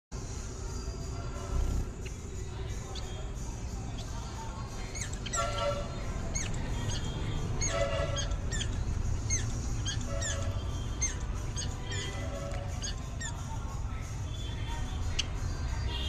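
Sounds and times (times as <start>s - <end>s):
sparrows chirping: 0.2s - 16.0s.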